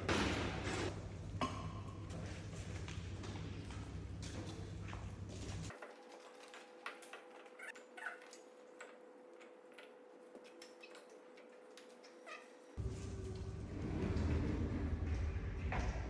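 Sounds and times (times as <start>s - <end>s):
wood fire crackling: 12.8s - 15.7s
low rumble: 12.8s - 16.0s.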